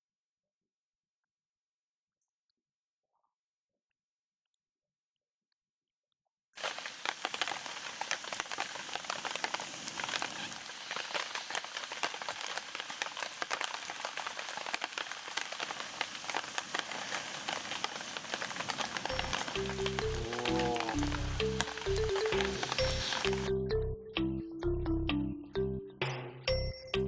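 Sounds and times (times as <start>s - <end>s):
heavy rain falling: 6.6s - 23.9s
sharp ticks and crackles: 6.6s - 26.7s.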